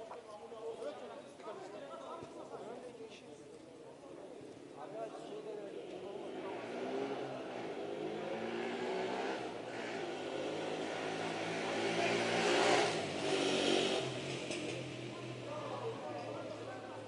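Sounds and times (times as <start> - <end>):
car engine passing: 6.2 - 17.0.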